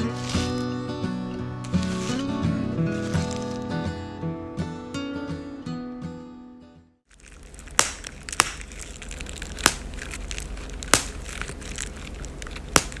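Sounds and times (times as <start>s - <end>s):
brittle material crunching: 7.1s - 13.0s
sharp cracks: 7.1s - 13.0s.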